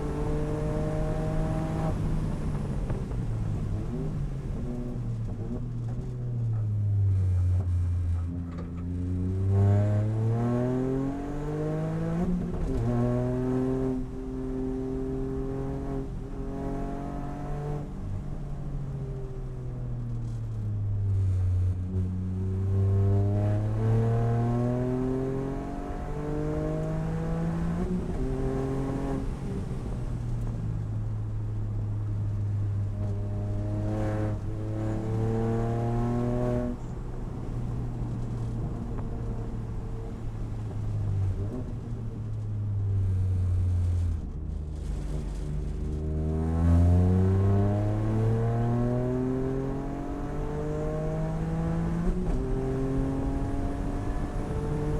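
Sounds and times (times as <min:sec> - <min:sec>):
car engine revving through gears: 0:00.0 - 0:03.2, 0:07.2 - 0:18.0, 0:22.2 - 0:29.9, 0:32.9 - 0:37.5, 0:45.0 - 0:54.9.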